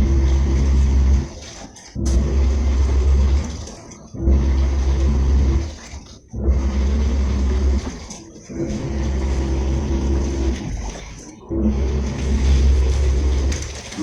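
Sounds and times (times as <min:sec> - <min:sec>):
washing machine drum turning: 0:11.5 - 0:14.0.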